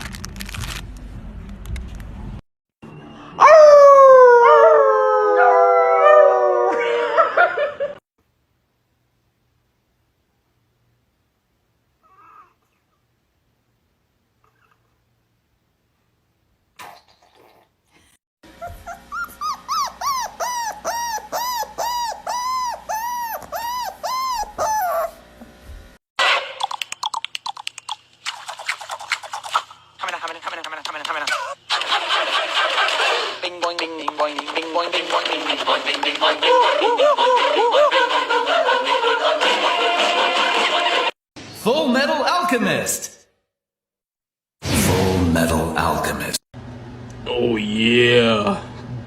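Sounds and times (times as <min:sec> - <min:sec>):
dog howling: 0:03.4 - 0:07.4, 0:18.6 - 0:25.2, 0:36.4 - 0:39.4
dog whining: 0:12.0 - 0:13.0, 0:14.4 - 0:15.0, 0:18.5 - 0:25.2.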